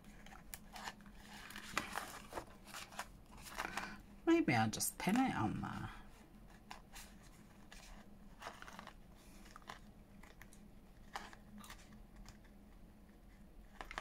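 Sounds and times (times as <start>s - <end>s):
paper rustling: 0.0s - 4.0s, 6.4s - 12.6s, 13.2s - 14.0s.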